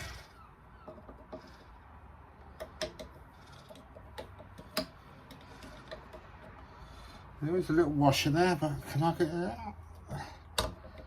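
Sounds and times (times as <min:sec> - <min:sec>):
engine parts clicking and tapping: 0:00.8 - 0:07.1, 0:09.9 - 0:11.0.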